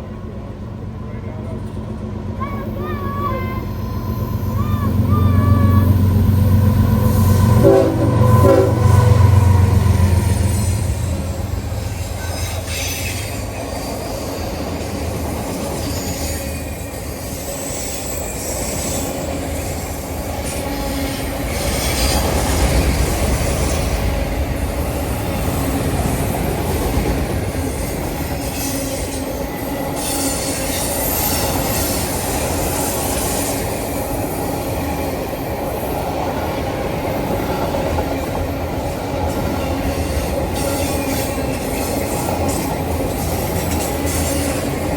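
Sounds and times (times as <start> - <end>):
train wheels rumbling on rails: 0.0 - 44.9
high wheel squeal: 3.5 - 22.4.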